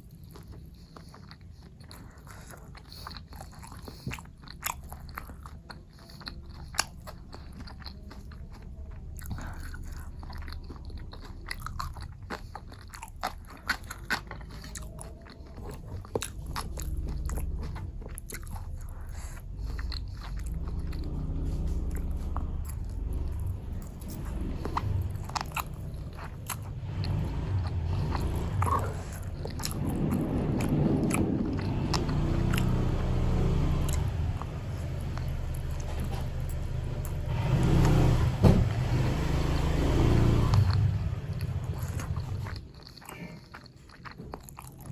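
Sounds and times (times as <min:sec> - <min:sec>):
biting crunching and chewing: 0:00.0 - 0:44.9
low rumble: 0:13.2 - 0:42.6.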